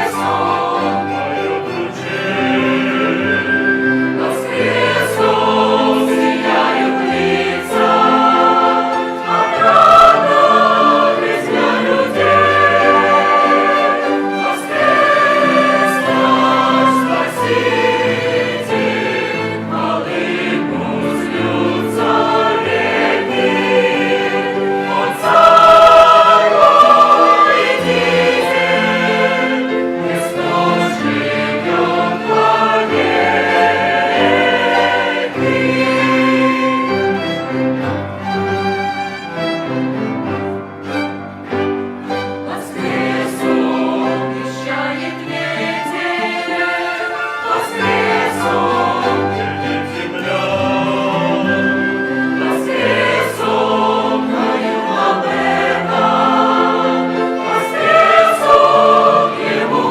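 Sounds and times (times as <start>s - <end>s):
church choir singing a hymn: 0.0s - 59.9s
instrumental ensemble accompanying: 0.0s - 59.9s.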